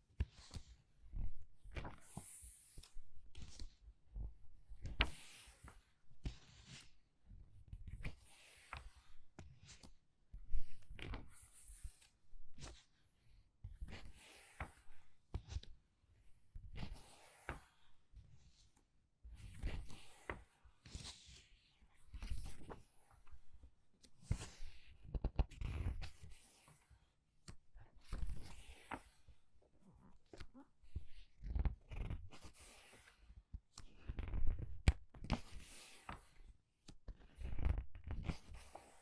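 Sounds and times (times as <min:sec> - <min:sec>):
book pages turning: 0:28.0 - 0:29.3, 0:31.3 - 0:36.4, 0:37.2 - 0:39.0.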